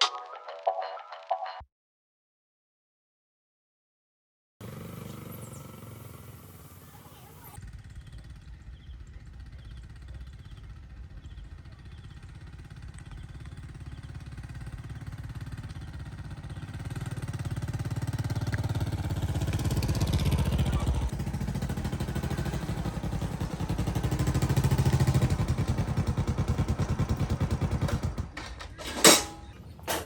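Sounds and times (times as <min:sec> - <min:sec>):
rhythmic engine running: 0:07.8 - 0:30.0.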